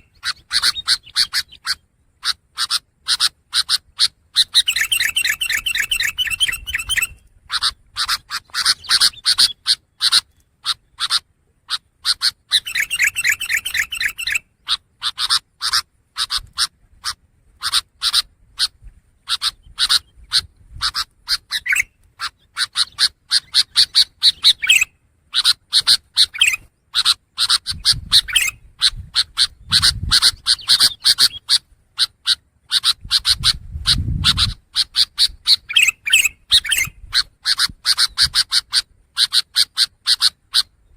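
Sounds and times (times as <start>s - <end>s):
bird harsh chattering song: 0.0s - 40.9s.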